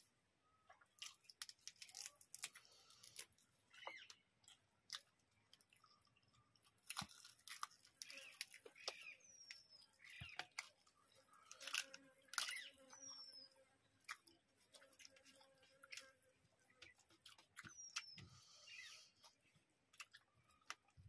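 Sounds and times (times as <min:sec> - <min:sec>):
chewing and lip smacks: 0:19.2 - 0:21.0.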